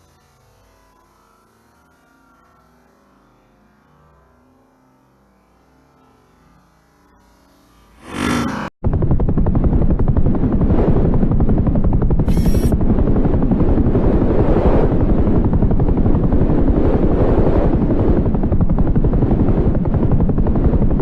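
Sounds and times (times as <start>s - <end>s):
machine throbbing loudly: 7.2s - 21.0s.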